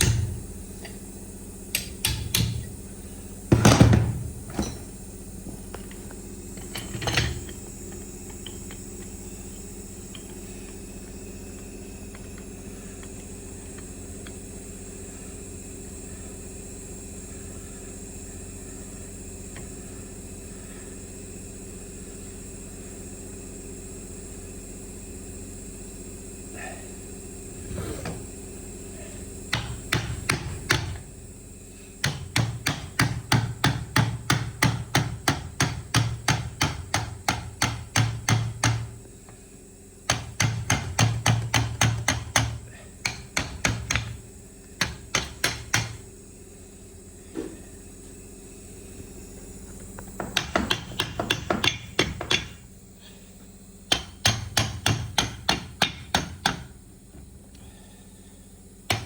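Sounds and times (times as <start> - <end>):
hammer tapping on metal: 1.7 - 2.7, 32.0 - 38.9, 40.1 - 44.2, 44.8 - 46.0, 50.2 - 52.6, 53.9 - 56.7.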